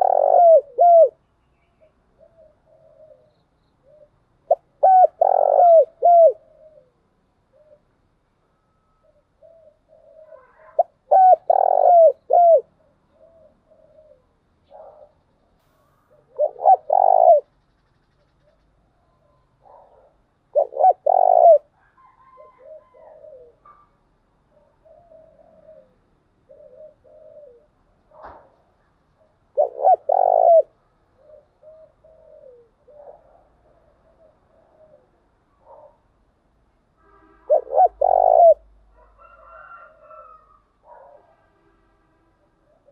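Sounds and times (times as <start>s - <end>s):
doves cooing: 0.0s - 1.2s, 2.1s - 7.9s, 9.0s - 15.2s, 16.0s - 17.5s, 18.3s - 23.9s, 24.5s - 28.6s, 29.2s - 36.0s, 37.5s - 41.3s.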